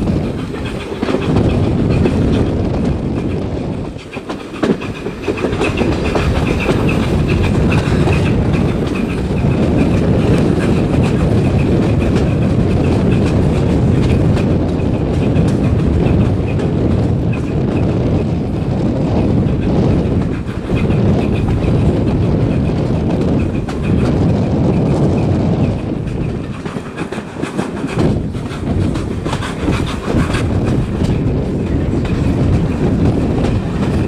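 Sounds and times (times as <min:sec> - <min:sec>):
train wheels clickety-clack: 0:00.0 - 0:34.0.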